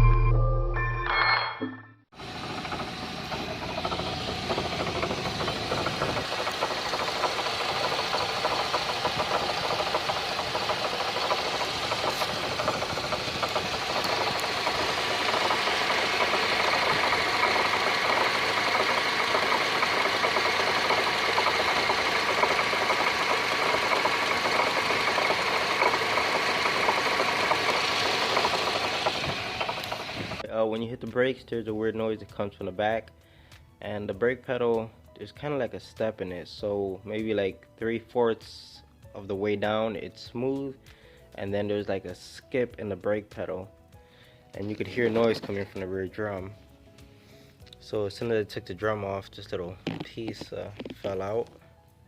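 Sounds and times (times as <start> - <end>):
car brake grinding: 2.2 - 30.4.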